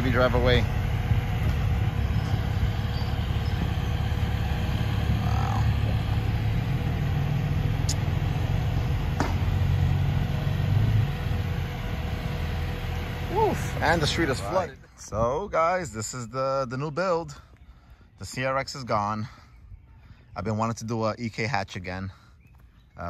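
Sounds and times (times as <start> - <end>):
car engine running at low revs: 0.0 - 16.1.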